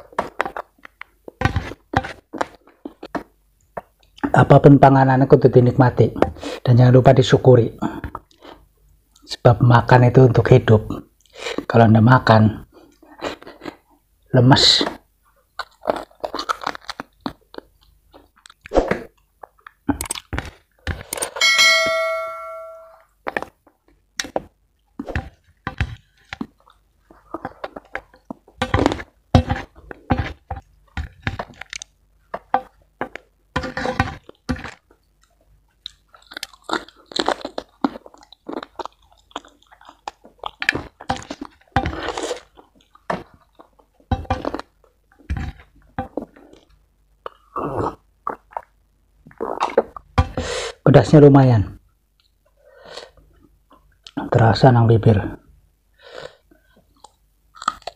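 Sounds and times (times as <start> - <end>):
food crunching: 15.5 - 21.4, 25.5 - 50.1, 56.4 - 57.9
wet chewing and lip smacking: 34.3 - 45.3, 56.5 - 57.9.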